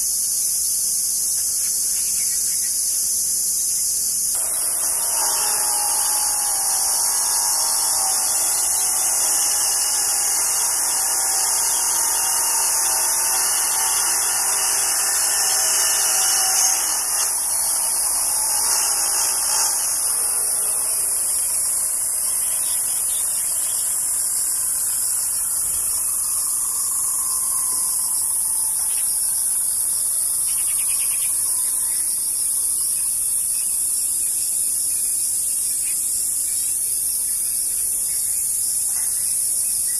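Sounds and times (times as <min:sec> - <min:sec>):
cicadas buzzing: 0:00.0 - 0:39.9
low buzzing drone: 0:04.3 - 0:32.0.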